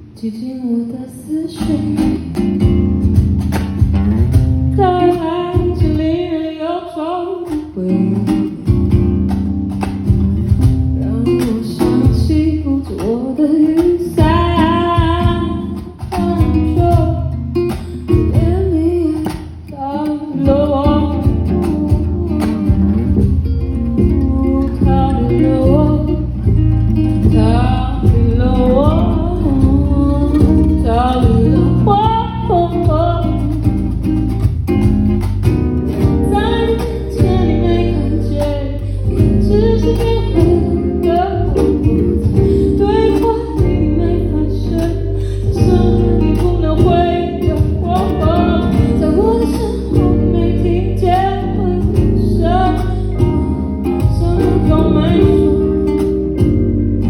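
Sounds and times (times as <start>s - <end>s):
guitar: 0.0s - 57.0s
bass line: 1.6s - 6.4s, 7.8s - 19.3s, 20.4s - 57.0s
person singing: 11.0s - 33.6s, 36.0s - 57.0s.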